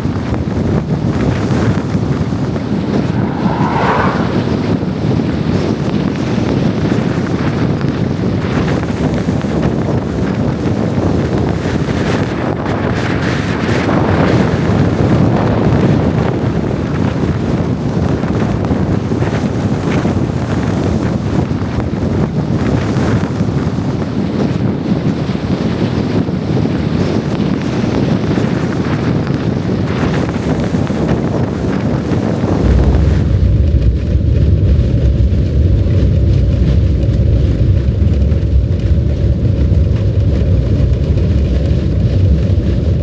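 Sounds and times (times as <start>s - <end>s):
strong blizzard wind roaring: 1.4s - 5.6s, 31.6s - 43.0s.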